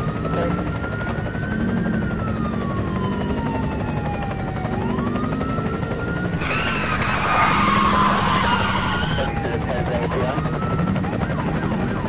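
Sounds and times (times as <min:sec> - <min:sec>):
police siren wailing: 0:00.0 - 0:12.0
low engine drone: 0:06.3 - 0:09.3.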